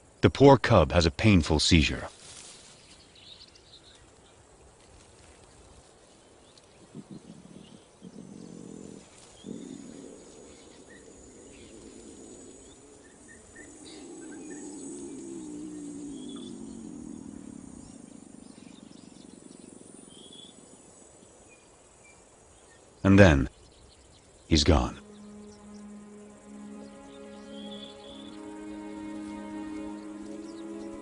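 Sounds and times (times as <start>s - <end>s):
faint bird chirps: 5.2s - 31.0s
lion calling: 6.9s - 18.8s.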